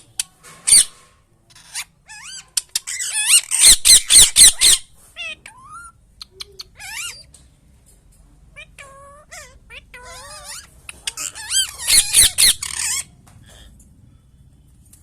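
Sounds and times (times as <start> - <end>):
parrot harsh squawks: 1.6 - 7.3, 8.5 - 13.1
parrot chirping and whistling: 5.5 - 7.3, 9.1 - 13.0.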